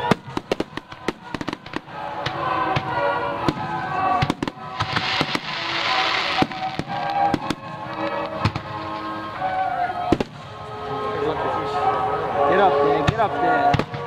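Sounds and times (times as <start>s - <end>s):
fireworks bursting: 0.0s - 10.6s
fireworks hiss: 4.3s - 9.2s.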